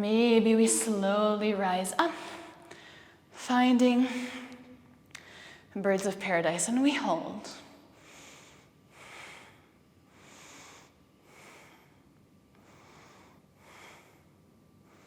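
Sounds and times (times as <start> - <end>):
woman breathing: 2.1 - 3.4, 4.0 - 5.8, 7.8 - 15.0.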